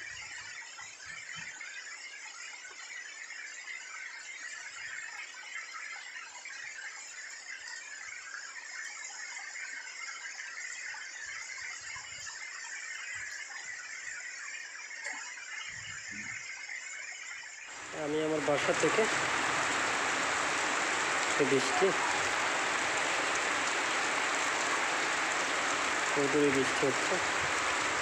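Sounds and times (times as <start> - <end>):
heavy rain falling: 17.7 - 28.0.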